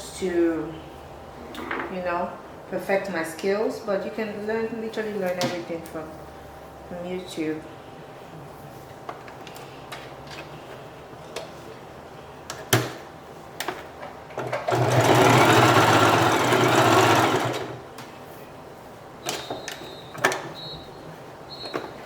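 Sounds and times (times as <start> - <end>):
sewing machine running: 14.4 - 17.8.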